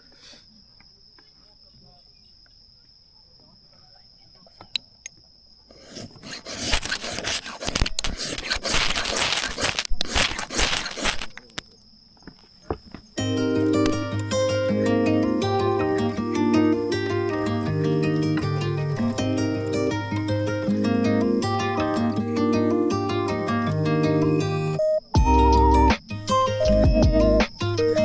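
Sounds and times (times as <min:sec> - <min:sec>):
insects trilling: 0:00.0 - 0:28.0
rough hissing and rustling: 0:05.7 - 0:11.6.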